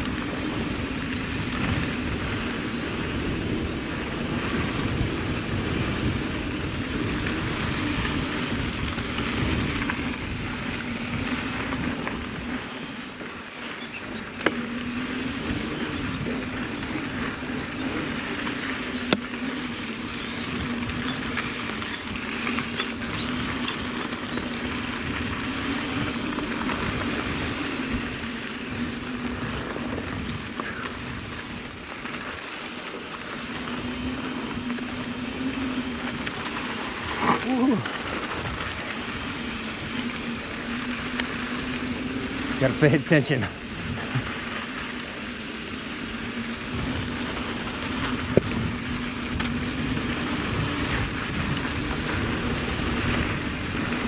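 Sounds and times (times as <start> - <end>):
bike tyre and drivetrain noise: 0.0 - 54.0
low hum: 33.2 - 54.0.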